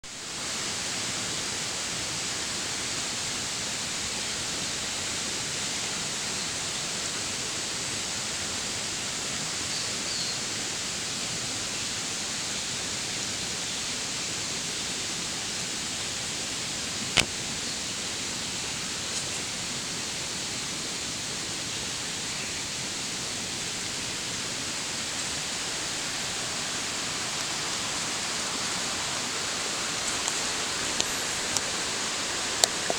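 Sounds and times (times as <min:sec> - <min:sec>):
waterfall rushing: 0:22.7 - 0:32.9.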